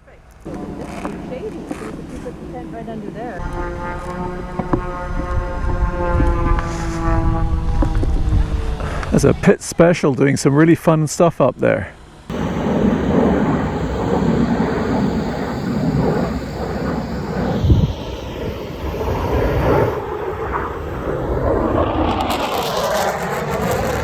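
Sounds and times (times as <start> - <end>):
propeller plane engine overhead: 12.0 - 24.0.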